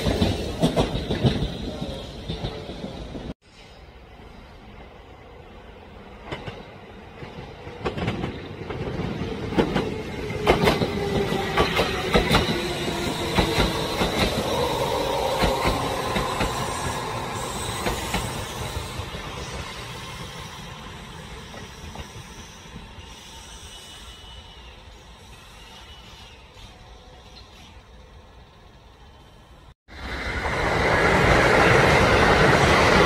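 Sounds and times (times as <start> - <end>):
train wheels clacking over rail joints: 0.0 - 2.7
train rumble: 0.0 - 24.4.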